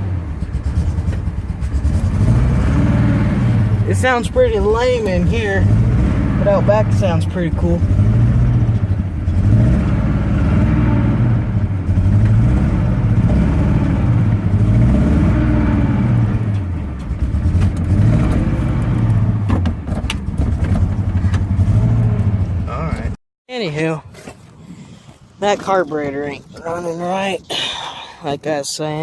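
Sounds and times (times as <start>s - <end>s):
truck engine revving: 0.0s - 23.2s.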